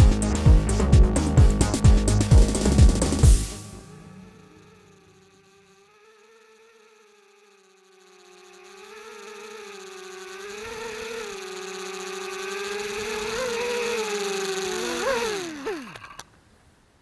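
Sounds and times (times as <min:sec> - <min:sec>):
drone motors whining: 0:02.0 - 0:16.3.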